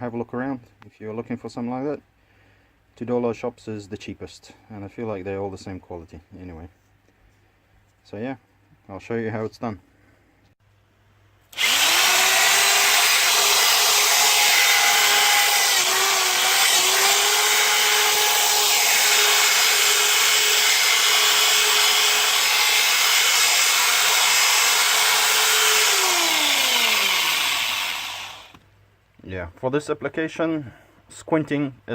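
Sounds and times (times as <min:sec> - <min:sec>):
power drill with brush on brick: 0:11.5 - 0:28.6.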